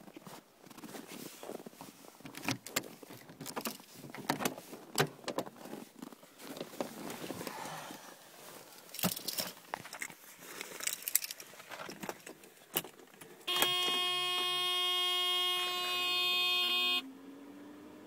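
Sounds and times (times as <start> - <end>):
keys jangling: 8.9 - 10.1, 10.7 - 11.5
electronic warning buzzer: 13.5 - 17.0.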